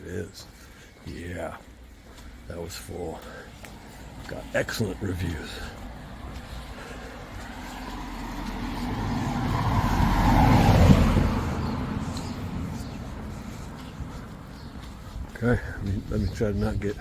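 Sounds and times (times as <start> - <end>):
car passing by: 3.2 - 16.4.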